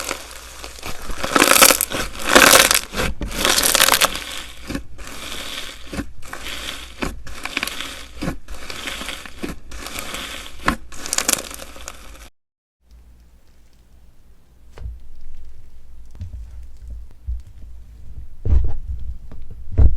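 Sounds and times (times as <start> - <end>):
slime crackling when squeezed: 0.0 - 4.4.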